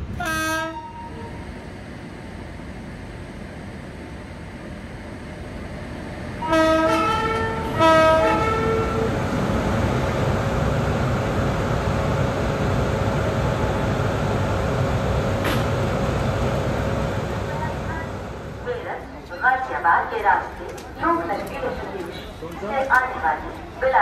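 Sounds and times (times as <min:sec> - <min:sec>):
locomotive rumbling on track: 0:00.0 - 0:24.0
multi-tone train horn blasts: 0:00.1 - 0:01.4, 0:06.4 - 0:09.2.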